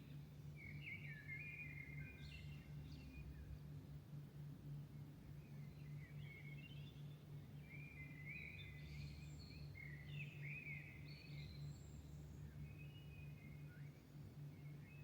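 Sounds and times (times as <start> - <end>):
songbirds singing: 0.0 - 15.0.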